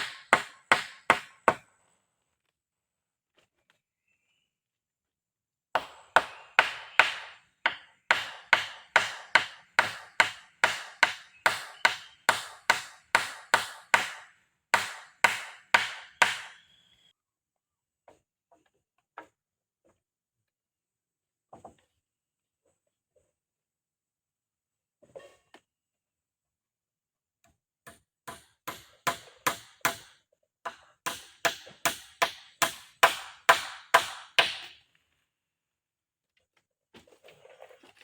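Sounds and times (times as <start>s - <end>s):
chopping blows on wood: 0.0s - 1.5s, 5.8s - 16.6s, 31.1s - 34.7s.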